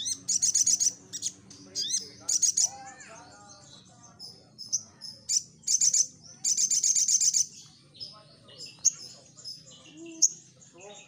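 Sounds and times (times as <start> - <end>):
bird singing chattering trills: 0.0 - 11.0.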